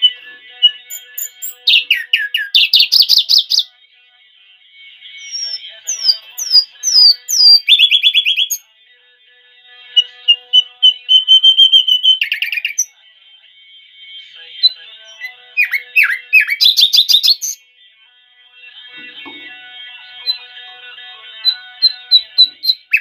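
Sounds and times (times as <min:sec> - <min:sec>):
songbird singing: 0:00.0 - 0:03.7, 0:05.1 - 0:08.6, 0:09.9 - 0:13.0, 0:14.6 - 0:17.6, 0:19.0 - 0:23.0.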